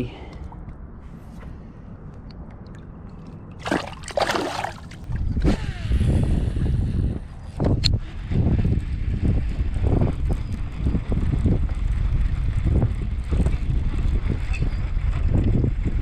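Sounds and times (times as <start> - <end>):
wind buffeting microphone: 3.6 - 16.0.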